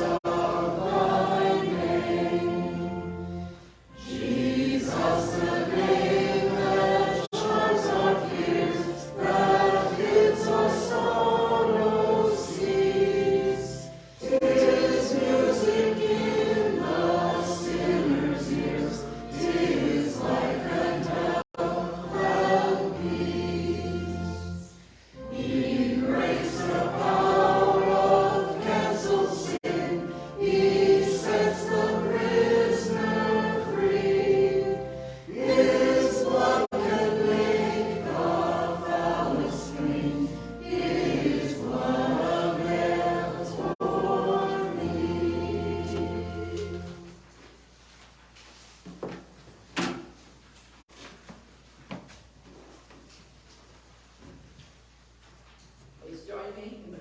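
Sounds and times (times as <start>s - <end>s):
choir singing: 0.0s - 47.2s
singers breathing: 3.4s - 4.0s, 24.7s - 25.3s, 34.9s - 35.3s.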